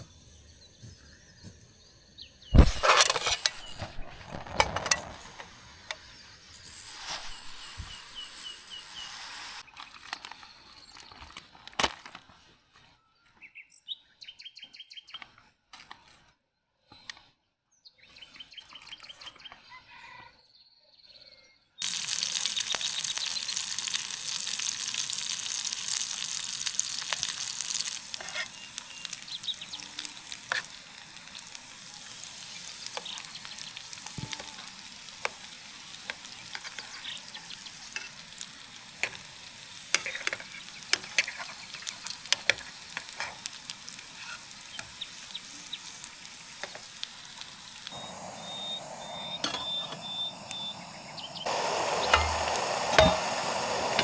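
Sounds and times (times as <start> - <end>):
birds chirping: 0.0 - 9.6, 21.8 - 54.0
food sizzling in a pan: 0.0 - 9.6, 21.8 - 54.0.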